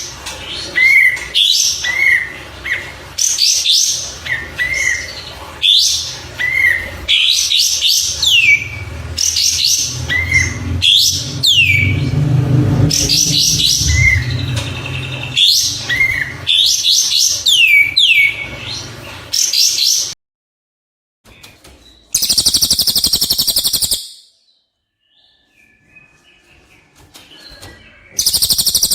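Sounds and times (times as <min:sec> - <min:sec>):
songbird singing: 0:04.2 - 0:18.4, 0:22.2 - 0:24.4, 0:27.4 - 0:28.9
low hum: 0:09.8 - 0:16.4.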